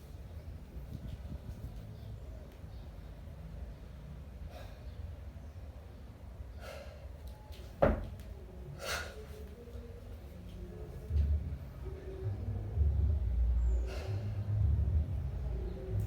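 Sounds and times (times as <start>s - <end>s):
sharp forceful breaths: 6.5s - 7.2s, 8.8s - 9.3s, 13.8s - 14.5s
steady low hum: 7.9s - 16.0s.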